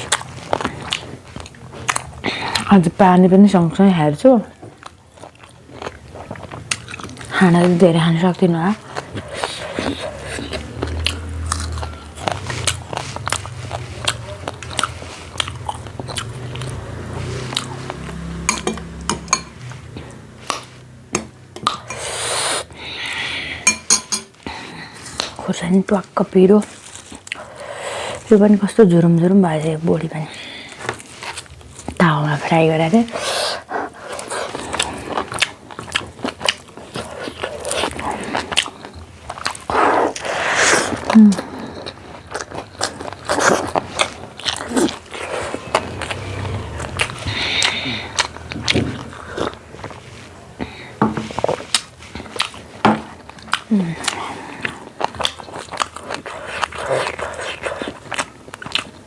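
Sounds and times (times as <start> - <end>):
chewing with wet mouth clicks: 0.0 - 2.8, 4.6 - 7.4, 8.7 - 22.1, 33.8 - 50.0, 50.6 - 59.0.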